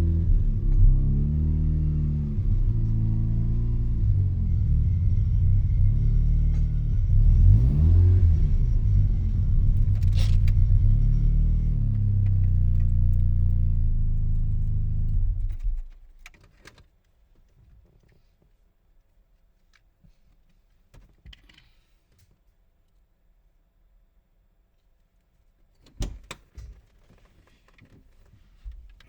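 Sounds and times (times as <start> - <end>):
engine revving: 0.0 - 15.8.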